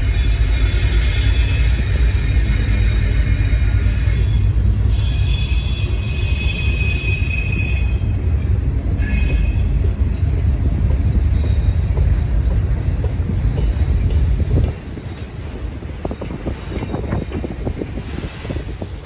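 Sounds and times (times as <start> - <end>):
wheel squeal: 0.0 - 8.2, 8.9 - 9.9
rail cars rumbling past: 0.0 - 19.0.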